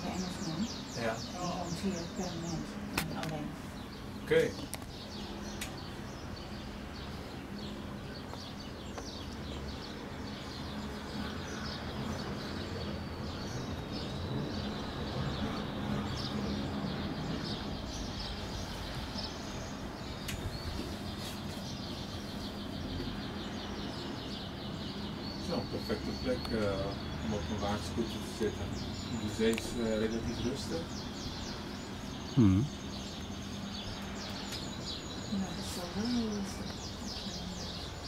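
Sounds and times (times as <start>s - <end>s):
outdoor background noise: 0.0s - 38.0s
small birds chirping: 0.0s - 38.0s.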